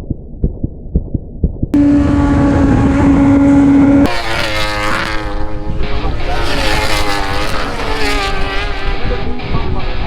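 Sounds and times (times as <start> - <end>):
muffled low thumps: 0.0 - 4.1
motorcycle engine revving: 1.8 - 10.0.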